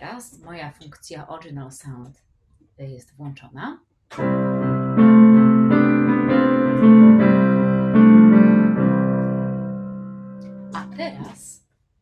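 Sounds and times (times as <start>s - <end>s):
sustained piano chords: 4.1s - 11.6s.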